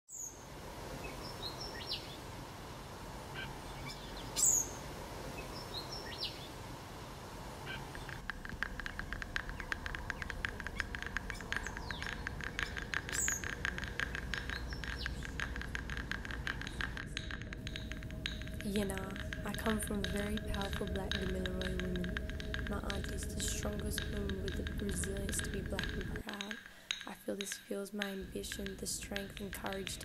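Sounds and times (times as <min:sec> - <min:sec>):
high falling bird chirps: 0:00.1 - 0:02.5, 0:03.2 - 0:06.8, 0:07.5 - 0:24.2
fast clicking pulses: 0:07.7 - 0:30.0.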